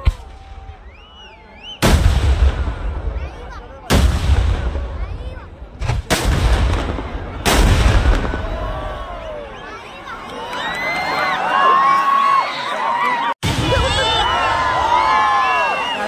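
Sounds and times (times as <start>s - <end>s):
fireworks booming: 1.8s - 9.4s, 13.4s - 14.9s.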